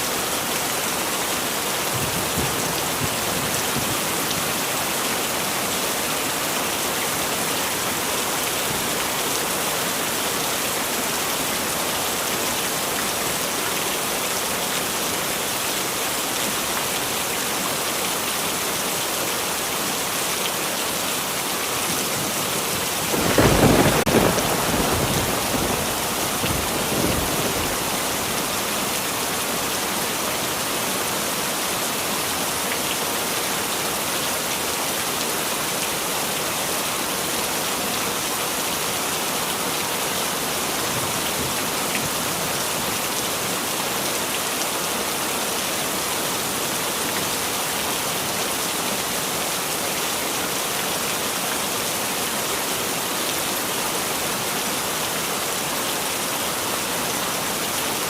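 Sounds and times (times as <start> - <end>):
heavy rain falling: 0.0 - 58.0
thunder rumble: 23.1 - 28.2.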